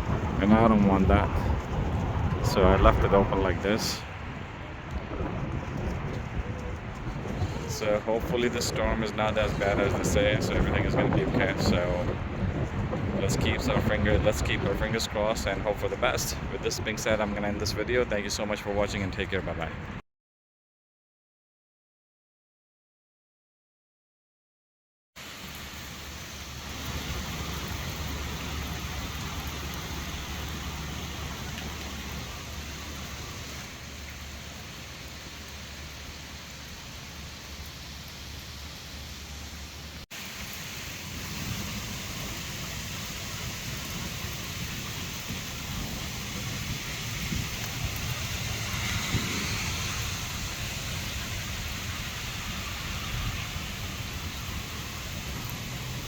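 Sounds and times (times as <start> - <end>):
low rumble: 0.0 - 17.8, 41.1 - 56.0
steady rain falling: 0.0 - 20.0, 25.2 - 56.0.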